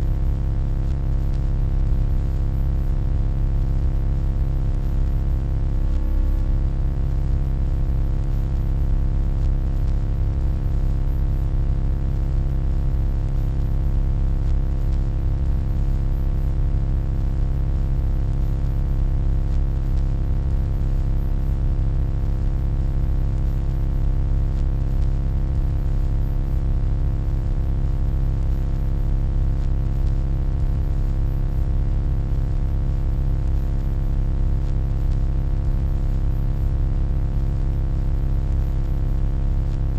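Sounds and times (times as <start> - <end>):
deep electronic hum: 0.0 - 11.6.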